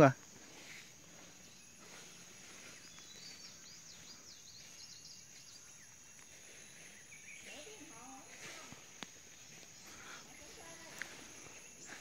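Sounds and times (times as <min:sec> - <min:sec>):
high chirping bird calls: 0:01.2 - 0:08.8.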